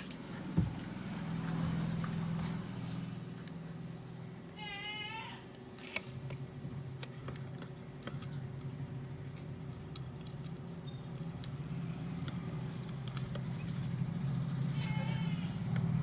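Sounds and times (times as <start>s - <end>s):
high-pitched animal call: 4.6s - 5.5s, 14.7s - 15.6s.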